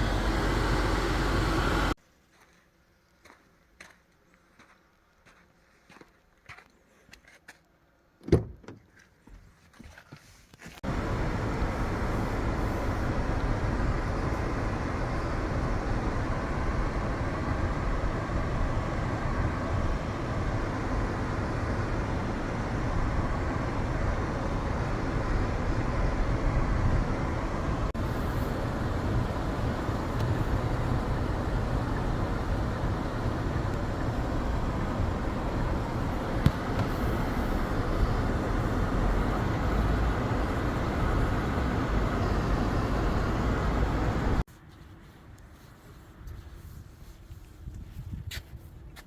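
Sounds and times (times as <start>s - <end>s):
car engine rumble: 0.0s - 2.0s, 10.8s - 44.5s.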